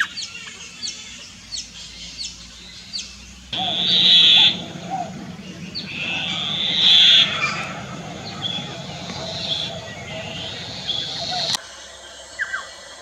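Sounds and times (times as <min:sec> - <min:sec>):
harsh buzzy animal call: 0:03.6 - 0:11.6
low background hum: 0:03.6 - 0:11.6.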